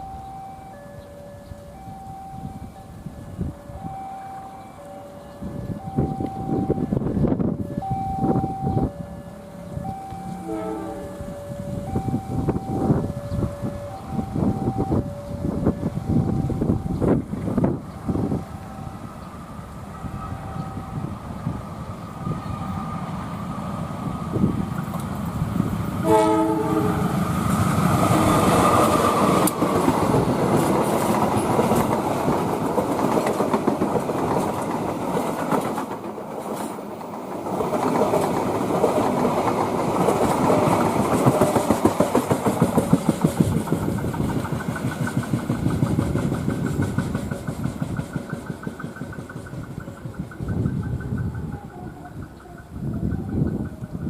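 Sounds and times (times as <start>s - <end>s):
train carriages rumbling: 0.0s - 54.0s
train horn blast: 10.1s - 12.0s, 26.0s - 27.3s, 28.0s - 29.2s
train wheels clickety-clack: 24.4s - 54.0s.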